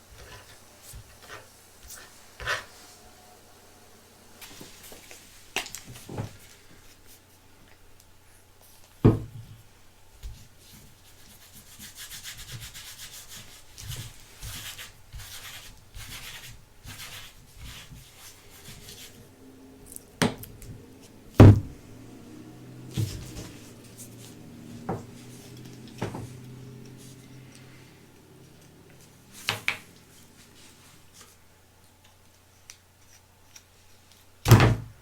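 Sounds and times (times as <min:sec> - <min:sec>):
rubbing and scraping of objects: 0:10.6 - 0:31.4.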